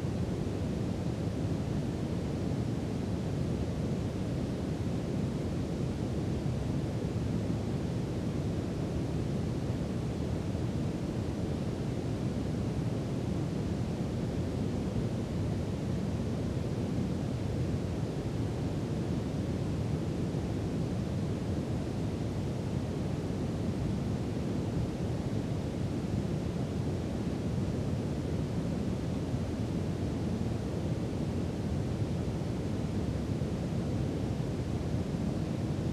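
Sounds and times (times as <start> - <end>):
brown noise hiss: 0.0 - 35.9.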